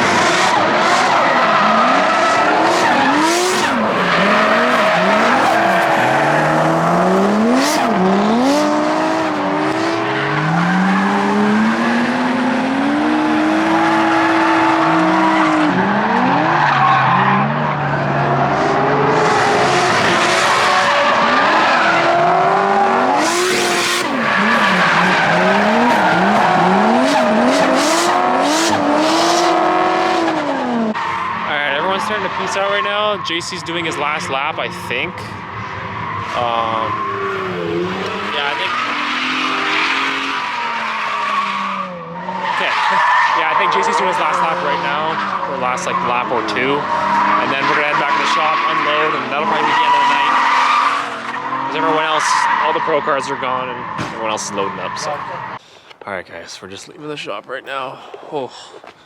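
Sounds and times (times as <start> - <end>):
car engines revving: 0.0 - 59.0
tyre squeal: 0.4 - 11.8, 19.8 - 33.4, 35.2 - 55.6.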